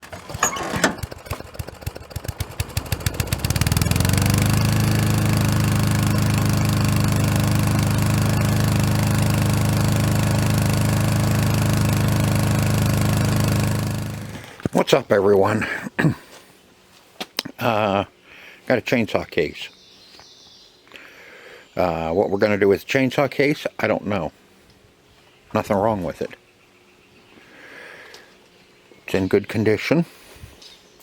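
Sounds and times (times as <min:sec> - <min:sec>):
engine running: 0:00.0 - 0:14.8.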